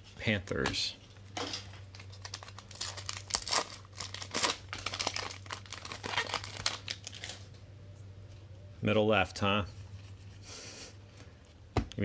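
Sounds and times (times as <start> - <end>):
plastic foil wrappers crinkling: 1.7 - 7.5.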